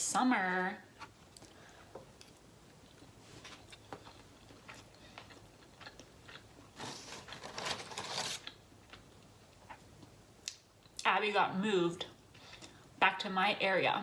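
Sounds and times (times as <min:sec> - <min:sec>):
person chewing food: 0:01.0 - 0:07.4.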